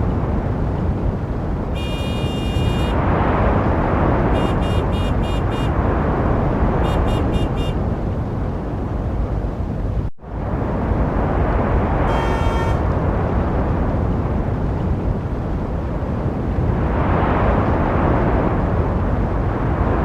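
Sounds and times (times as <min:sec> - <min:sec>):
road traffic rumble: 0:00.0 - 0:20.0
vehicle horn tooting: 0:01.8 - 0:03.0, 0:04.3 - 0:05.8, 0:06.8 - 0:07.8, 0:12.0 - 0:12.9.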